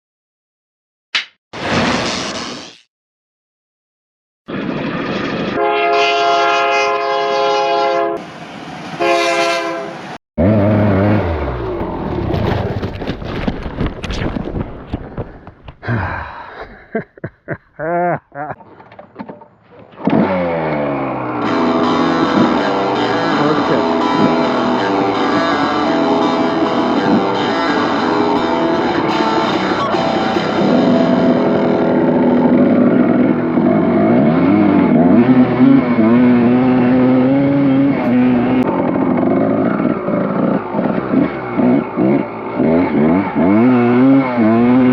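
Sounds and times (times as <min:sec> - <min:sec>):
train horn blast: 0:05.6 - 0:08.3, 0:09.0 - 0:10.8, 0:21.4 - 0:31.4, 0:34.2 - 0:38.7
dirt bike engine revving: 0:10.4 - 0:12.5, 0:20.0 - 0:44.9
rock guitar music: 0:21.1 - 0:38.7.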